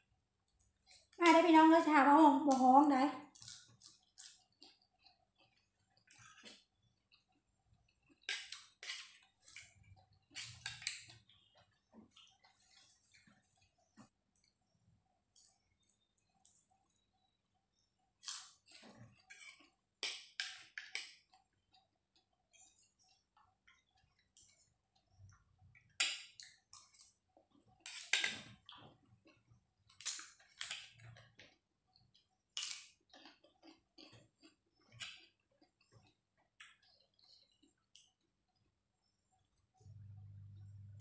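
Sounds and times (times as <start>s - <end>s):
crisp chewing crunches: 3.3s - 11.5s.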